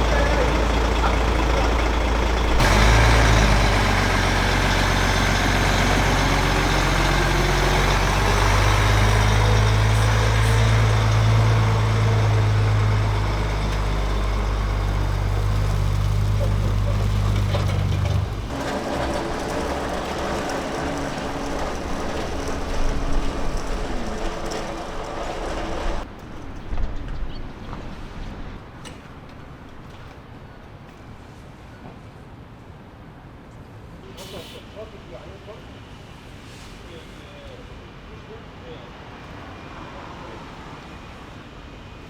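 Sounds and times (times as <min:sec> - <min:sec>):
truck diesel engine idling: 0:00.0 - 0:26.0.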